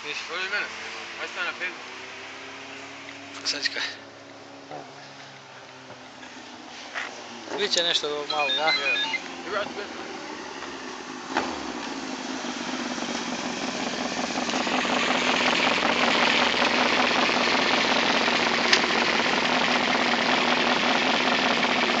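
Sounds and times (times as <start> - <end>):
motorcycle engine running: 8.4 - 22.0.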